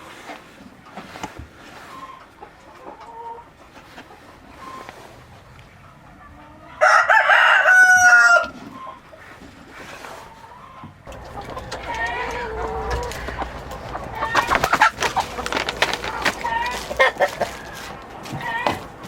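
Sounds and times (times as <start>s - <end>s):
chickens clucking: 0.0s - 19.0s
rooster crowing: 6.8s - 8.6s, 11.1s - 19.0s.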